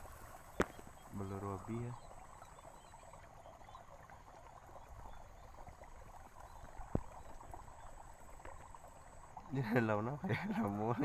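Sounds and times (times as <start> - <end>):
water trickling in mud: 0.0 - 11.0.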